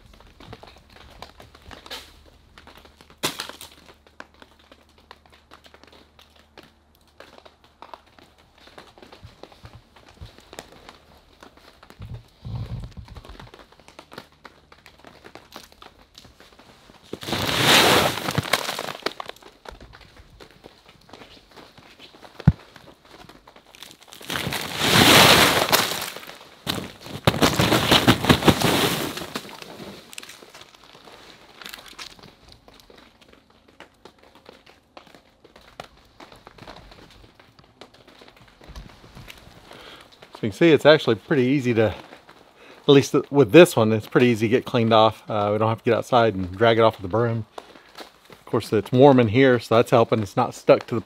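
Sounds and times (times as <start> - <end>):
plastic film crinkling: 0.0 - 51.0
snow sliding off roof: 17.0 - 19.3, 24.1 - 30.5.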